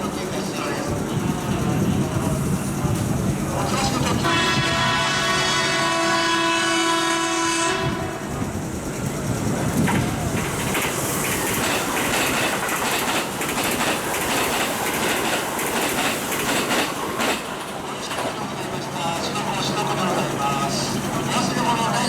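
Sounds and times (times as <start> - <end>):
train horn: 4.1 - 8.4
train wheels clattering over rail joints: 7.9 - 22.0.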